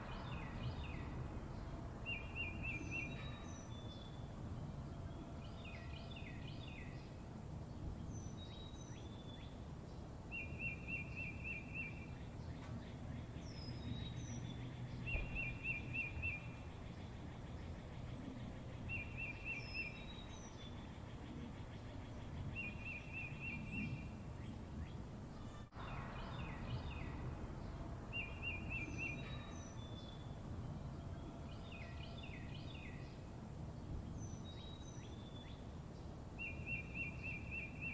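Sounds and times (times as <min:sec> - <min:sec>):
small birds chirping: 0:05.5 - 0:30.4
bird trill: 0:28.1 - 0:30.4.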